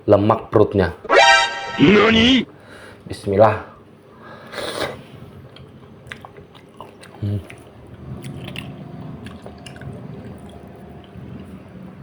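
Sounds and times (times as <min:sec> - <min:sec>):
person biting food: 0:01.1 - 0:02.4
wet chewing with clicks and smacks: 0:05.5 - 0:11.7.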